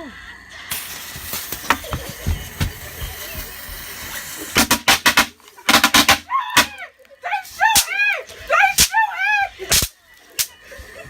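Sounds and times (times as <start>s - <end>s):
firecrackers hissing and popping: 0.6s - 6.2s, 9.6s - 10.9s.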